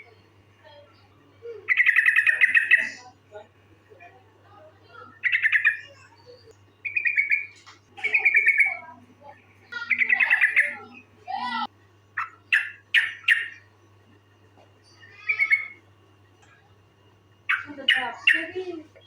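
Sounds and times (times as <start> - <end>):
bird chattering calls: 1.7 - 3.0, 5.2 - 6.1, 6.8 - 8.9, 9.8 - 11.0, 12.2 - 13.7, 17.4 - 18.6.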